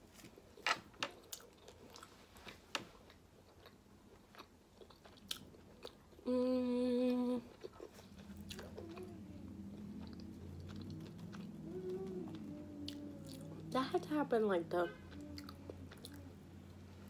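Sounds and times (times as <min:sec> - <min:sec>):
person chewing: 0:00.3 - 0:06.3, 0:07.1 - 0:13.8, 0:15.1 - 0:16.8
person humming mmm: 0:06.2 - 0:07.6, 0:08.5 - 0:13.8, 0:15.0 - 0:16.6.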